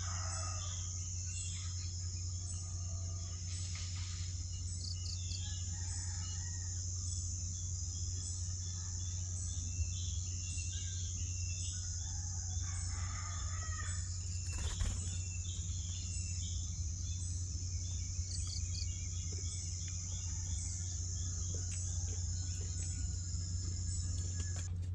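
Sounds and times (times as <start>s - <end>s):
low hum: 0.0s - 24.9s
birds chirping and calling: 7.9s - 24.7s.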